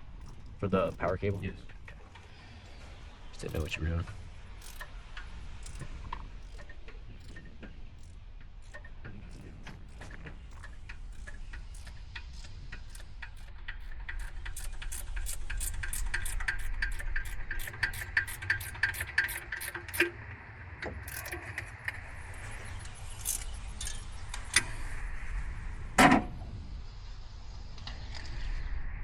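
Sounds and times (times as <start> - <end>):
ratchet wrench clicking: 0.2 - 2.0, 3.4 - 3.8, 4.4 - 20.1, 21.0 - 21.5, 23.0 - 24.0
tool clicks: 0.2 - 2.0, 3.4 - 20.1, 20.8 - 22.0, 23.2 - 24.0.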